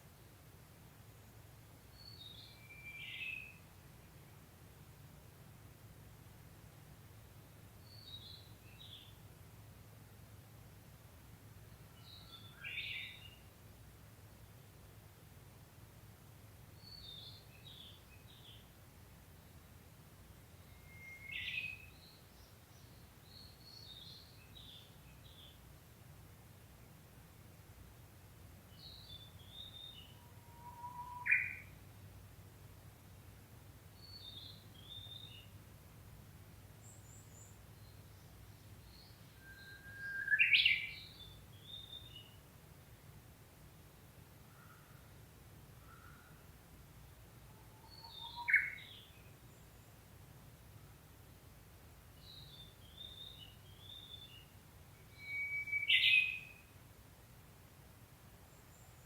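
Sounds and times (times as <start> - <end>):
bird whistling song: 2.0 - 3.6, 20.6 - 22.2, 28.8 - 31.7, 38.9 - 42.4, 47.8 - 49.3, 52.2 - 56.7
warbler singing: 12.0 - 13.4, 16.8 - 18.6, 20.5 - 25.6, 28.7 - 31.8, 34.0 - 35.6, 36.8 - 42.4, 47.8 - 49.9, 52.2 - 56.7
high bird twittering: 47.8 - 49.1, 55.2 - 56.6.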